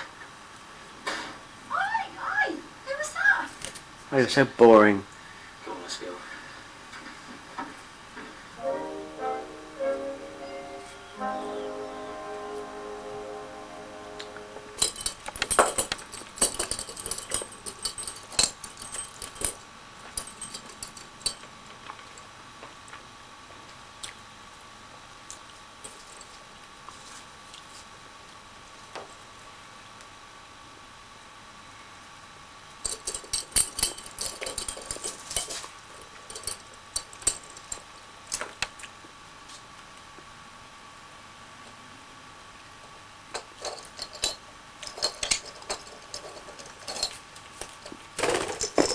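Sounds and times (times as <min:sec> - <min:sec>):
faint high hum: 0:00.0 - 0:22.9.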